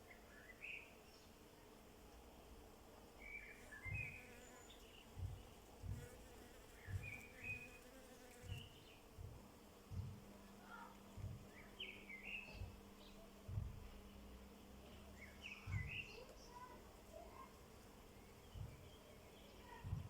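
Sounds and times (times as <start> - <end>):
small birds chirping: 3.2 - 9.3, 9.9 - 14.2, 14.8 - 20.0
flying insect buzzing: 3.6 - 5.0, 5.8 - 8.8
soft low thumps: 5.1 - 7.7, 8.4 - 11.8, 12.4 - 14.3, 14.9 - 16.0, 18.5 - 18.9, 19.7 - 20.0.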